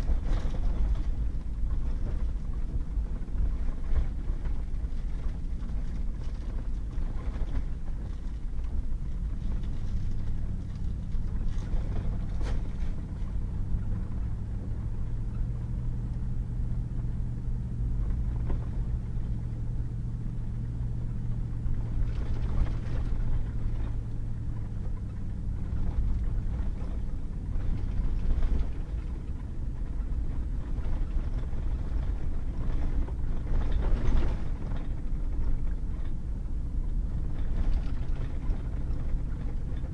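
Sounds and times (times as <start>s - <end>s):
truck engine and tyre rumble: 0.0s - 39.9s.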